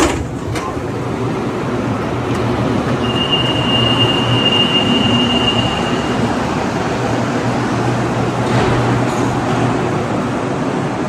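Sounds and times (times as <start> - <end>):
metro train running noise: 0.0 - 11.0
high-pitched squeal: 3.0 - 7.5.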